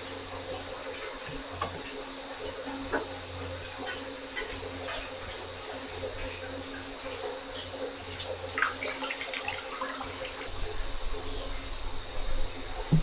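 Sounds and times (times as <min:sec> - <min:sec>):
water running: 0:00.0 - 0:13.0.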